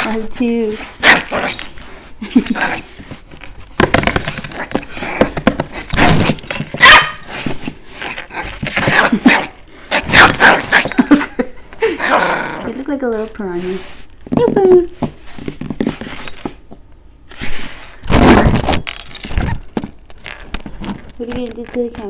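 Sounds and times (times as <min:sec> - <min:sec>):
puppy barking: 0:06.8 - 0:07.3.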